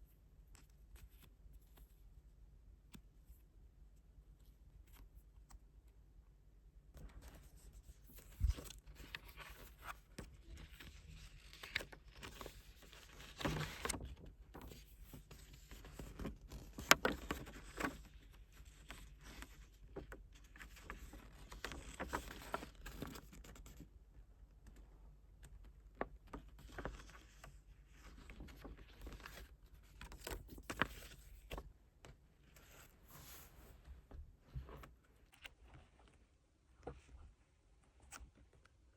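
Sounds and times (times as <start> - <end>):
paper and plastic rustling: 7.0 - 23.8.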